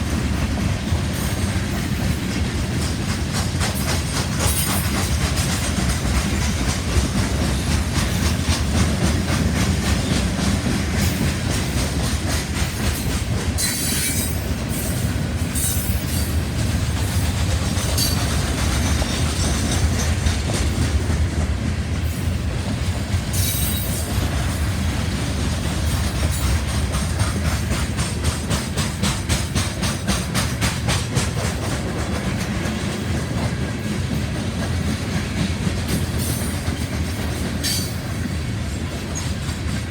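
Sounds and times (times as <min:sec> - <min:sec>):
train rumble: 0:00.0 - 0:39.9
train wheels clicking over joints: 0:00.0 - 0:39.9
wheel screeching on rail: 0:13.0 - 0:16.4, 0:23.3 - 0:24.7.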